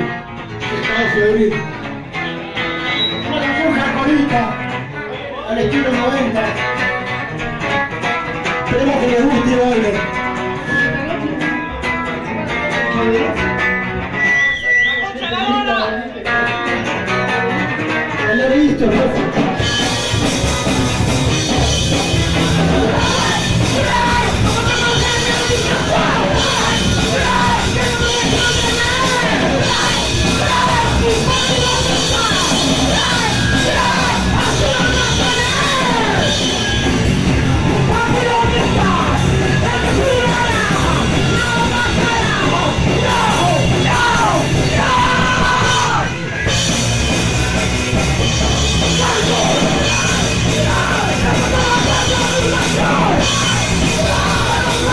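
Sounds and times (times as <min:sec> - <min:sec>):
punk band playing live: 0:00.0 - 0:54.9
shouted vocals: 0:19.6 - 0:46.6, 0:48.4 - 0:54.9.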